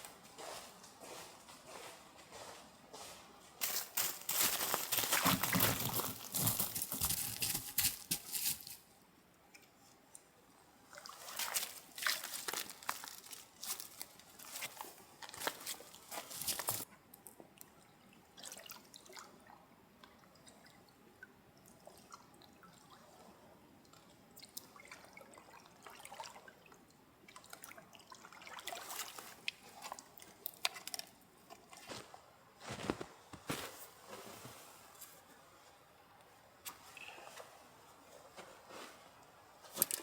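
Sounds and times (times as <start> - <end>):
rustling: 3.6 - 8.8, 11.6 - 16.8, 31.8 - 35.8, 36.7 - 40.0.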